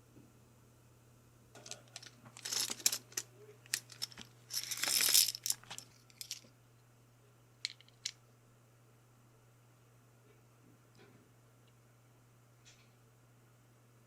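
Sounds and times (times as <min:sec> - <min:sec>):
packaging rustling: 0:01.7 - 0:06.4.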